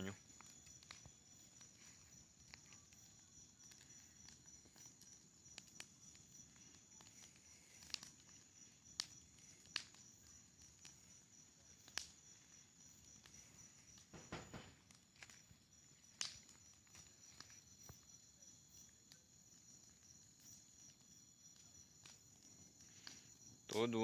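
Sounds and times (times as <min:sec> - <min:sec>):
bonfire crackling and popping: 0:00.0 - 0:24.0
crickets chirring: 0:00.0 - 0:24.0.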